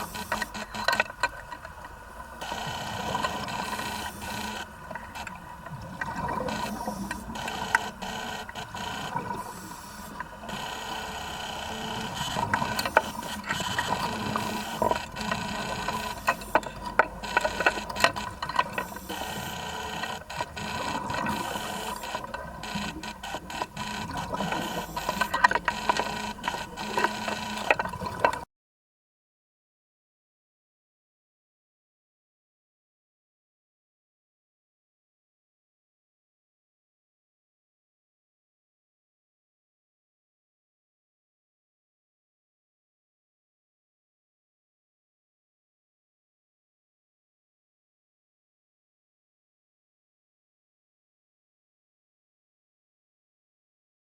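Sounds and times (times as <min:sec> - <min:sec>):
vacuum pump humming: 0:00.0 - 0:01.0, 0:02.4 - 0:28.0.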